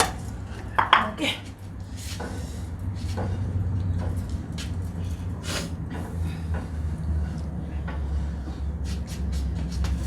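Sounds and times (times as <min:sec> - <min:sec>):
steady low rumble: 0:09.6 - 0:10.0.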